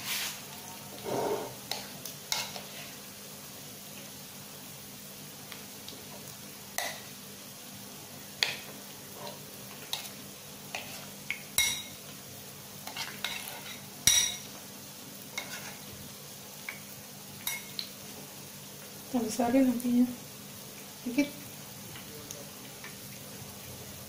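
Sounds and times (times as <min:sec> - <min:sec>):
chicken wings sizzling in oil: 0:00.0 - 0:24.0
metal utensil clinking on pan: 0:11.6 - 0:12.0, 0:12.9 - 0:14.5, 0:17.4 - 0:17.8.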